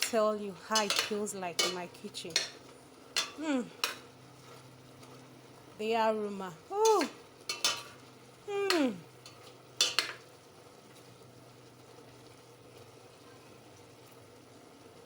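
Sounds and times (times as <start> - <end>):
pot boiling with bubbling hiss: 0.0 - 15.0
woman exclaiming: 3.4 - 3.8, 5.8 - 7.2, 8.5 - 9.1.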